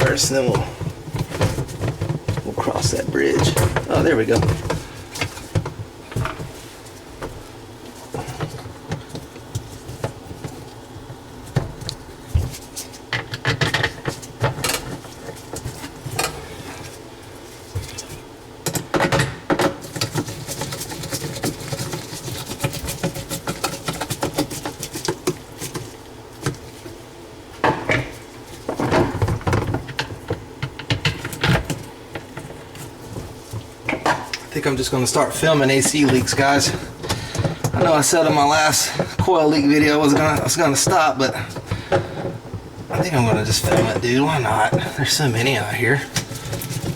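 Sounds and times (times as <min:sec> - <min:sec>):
faint steady hum: 0:00.0 - 0:46.9
dishwasher parts clattering: 0:33.9 - 0:46.9.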